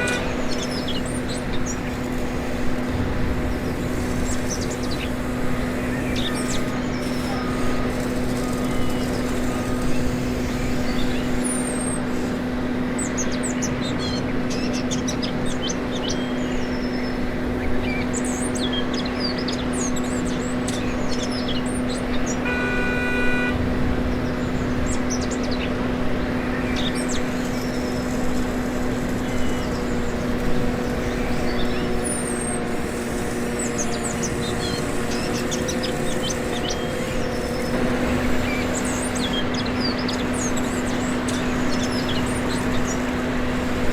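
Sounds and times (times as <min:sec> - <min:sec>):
toy excavator motor humming: 0:00.0 - 0:15.6, 0:16.2 - 0:43.9
birds chirping: 0:00.0 - 0:43.9
brief beep: 0:22.5 - 0:23.6.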